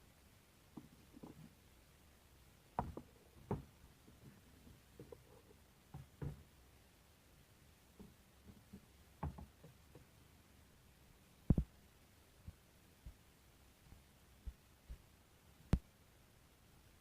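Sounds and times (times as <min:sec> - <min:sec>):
faint knocks and clicks: 0:00.8 - 0:01.6, 0:02.8 - 0:06.5, 0:07.9 - 0:10.1.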